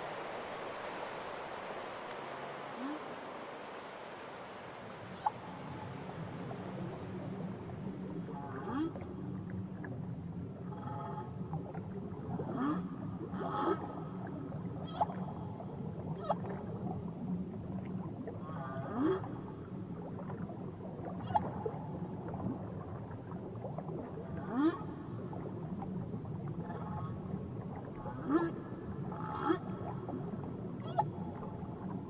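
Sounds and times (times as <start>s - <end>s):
whale song whoops and calls: 2.7s - 3.3s, 5.1s - 5.9s, 12.5s - 17.0s, 21.1s - 22.0s, 28.0s - 31.9s.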